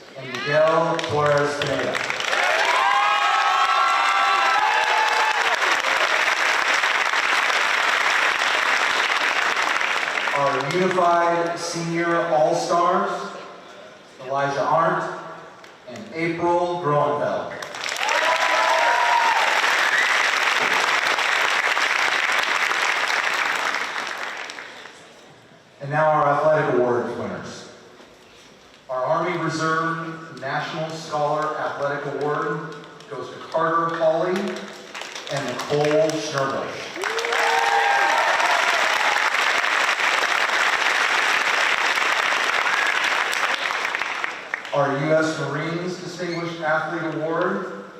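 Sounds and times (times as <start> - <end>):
audience applauding: 0.2 - 11.0, 17.6 - 25.0, 34.8 - 44.7
person whooping: 2.4 - 6.0, 18.0 - 20.1, 37.0 - 39.3.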